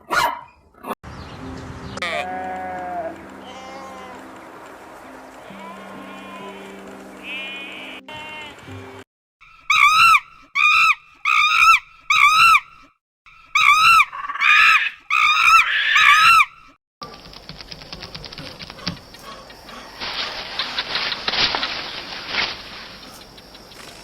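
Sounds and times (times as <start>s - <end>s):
high-pitched animal calls: 9.6s - 12.7s, 13.6s - 16.5s
rapid dense clicking and crackling: 17.0s - 24.0s.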